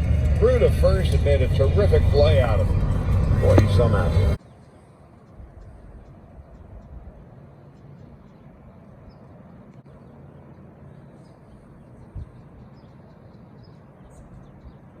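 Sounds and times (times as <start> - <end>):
outdoor background rumble and hiss: 0.0 - 15.0
low thump: 2.8 - 4.4.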